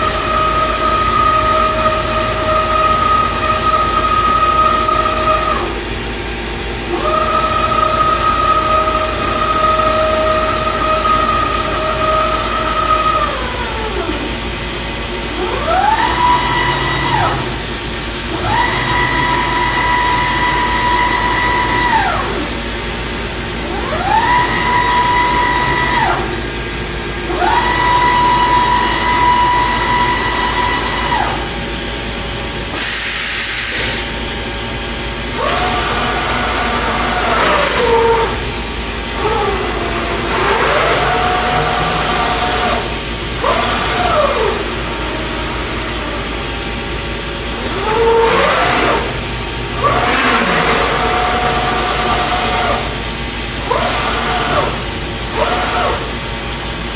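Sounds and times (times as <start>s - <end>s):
cnc router motors whining: 0.0s - 32.8s, 33.7s - 56.9s
short hiss: 32.8s - 34.1s.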